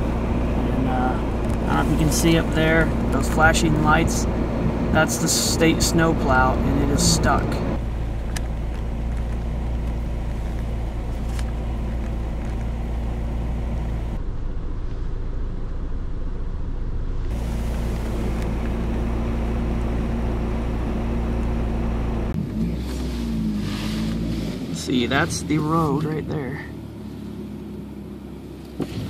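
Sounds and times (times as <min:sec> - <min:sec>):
pickup engine droning: 0:00.0 - 0:29.0.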